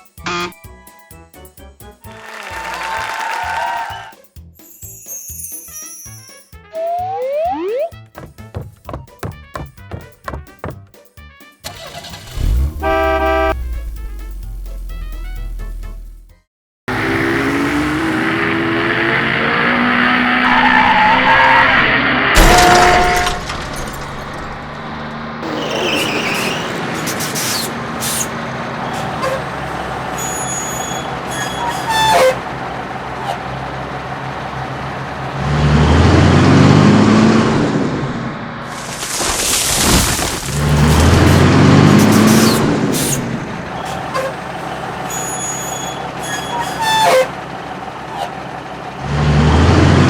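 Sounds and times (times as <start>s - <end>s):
cartoon truck engine running: 0.2s - 0.7s, 1.8s - 4.2s, 11.6s - 39.2s, 40.1s - 50.0s
clicks and beeps: 6.7s - 8.0s.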